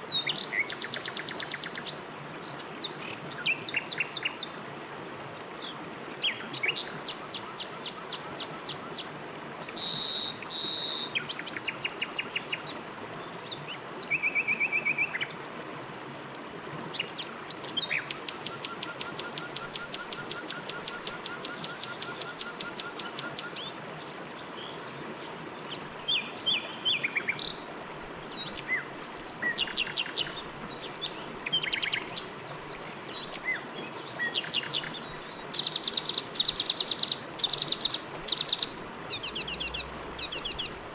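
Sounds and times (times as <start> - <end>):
river water flowing: 0.0 - 40.9
songbirds chirping and trilling: 16.9 - 40.8.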